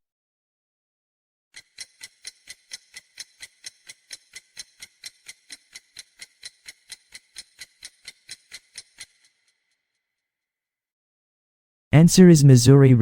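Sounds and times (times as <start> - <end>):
rapid clock-like ticking: 1.6 - 9.6.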